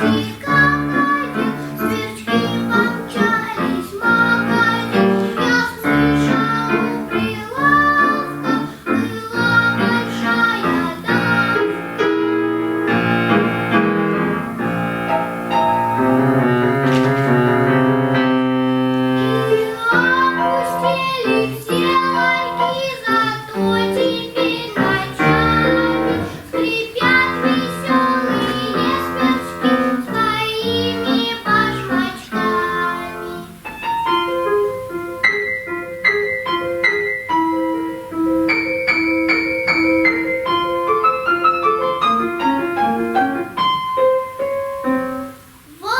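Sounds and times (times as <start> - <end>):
girl singing: 0.0 - 16.5, 17.7 - 35.0, 45.6 - 45.9
keyboard accompaniment: 0.0 - 45.7.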